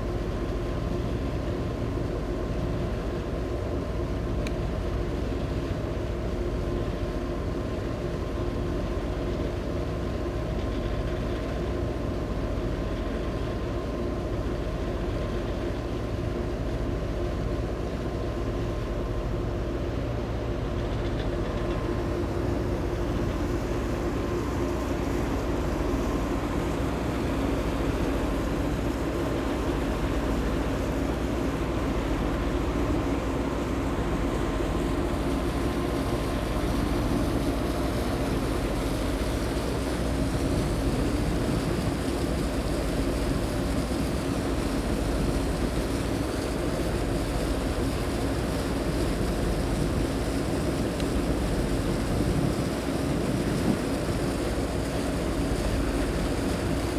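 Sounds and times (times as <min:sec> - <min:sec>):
boat engines droning: 0:00.0 - 0:56.9
wind: 0:00.0 - 0:56.9
rushing water: 0:21.7 - 0:56.9.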